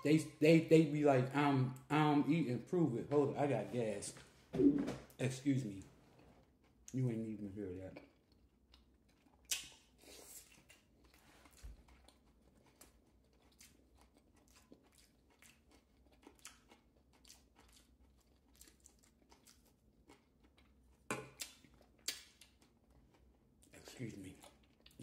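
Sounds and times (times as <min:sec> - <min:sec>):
person chewing food: 0:06.2 - 0:07.0, 0:07.9 - 0:25.0
wet mouth clicks: 0:09.5 - 0:09.8, 0:21.1 - 0:22.4.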